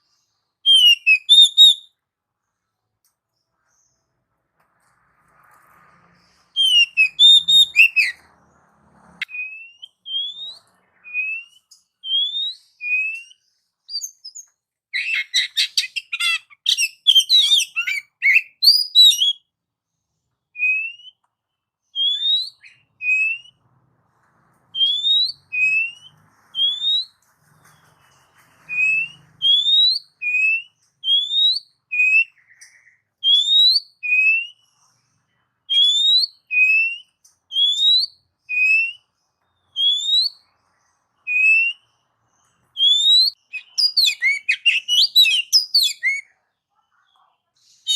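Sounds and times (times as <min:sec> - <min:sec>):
bird whistling: 0:00.6 - 0:01.9, 0:06.5 - 0:08.2, 0:09.2 - 0:19.4, 0:20.6 - 0:21.2, 0:21.9 - 0:23.6, 0:24.7 - 0:27.2, 0:28.7 - 0:34.8, 0:35.7 - 0:39.1, 0:39.7 - 0:40.5, 0:41.2 - 0:41.9, 0:42.8 - 0:46.3.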